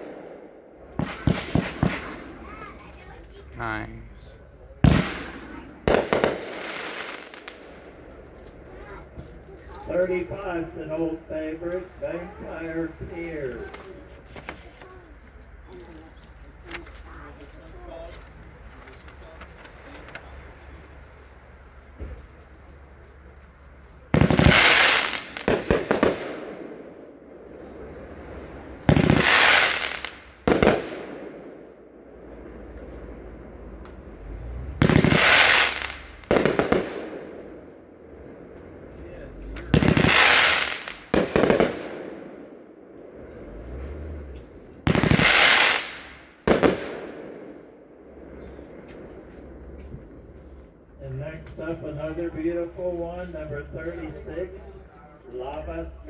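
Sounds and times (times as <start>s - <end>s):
firework bangs: 0.0s - 4.1s, 4.8s - 10.2s, 24.0s - 43.6s, 44.2s - 50.6s
firework shots: 0.0s - 10.6s, 24.0s - 43.4s, 44.2s - 49.8s.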